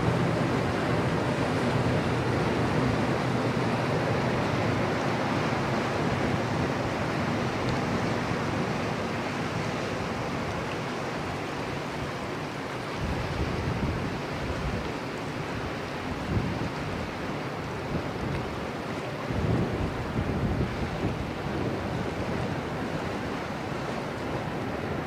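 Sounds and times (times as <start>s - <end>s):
river water flowing: 0.0s - 25.0s
wind on microphone: 12.9s - 18.6s, 19.2s - 25.0s.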